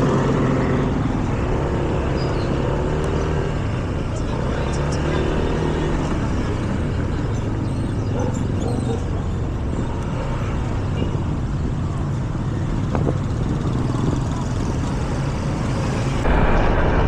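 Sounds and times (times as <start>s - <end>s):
road noise: 0.0s - 17.0s
wind noise: 12.5s - 15.1s, 16.0s - 17.0s.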